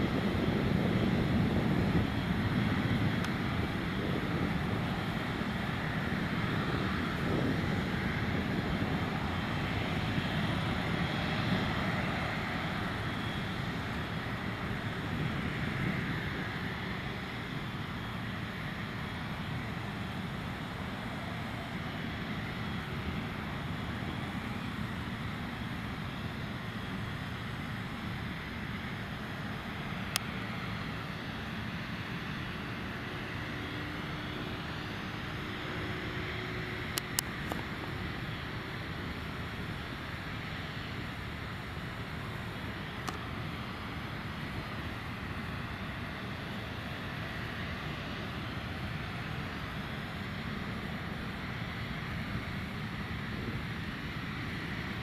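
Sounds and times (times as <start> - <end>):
airplane cabin engine rumble: 0.0 - 55.0.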